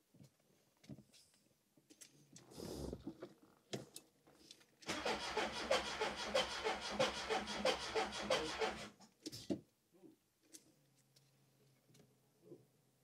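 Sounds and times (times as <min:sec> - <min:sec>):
starter motor cranking: 0:04.8 - 0:08.9.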